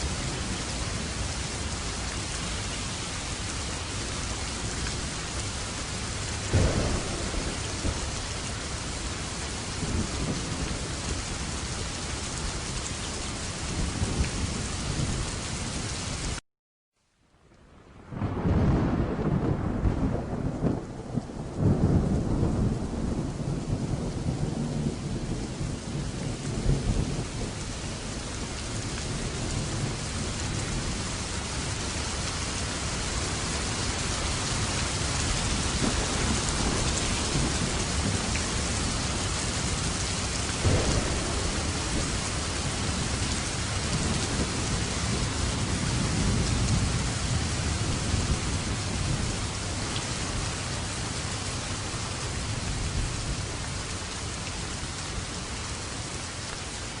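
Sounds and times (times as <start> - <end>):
thunder rumbling: 0.0 - 11.7, 18.0 - 54.1
steady rain: 0.0 - 16.4, 17.0 - 57.0
thunder crack: 6.5 - 8.4, 18.1 - 27.6, 40.2 - 47.0.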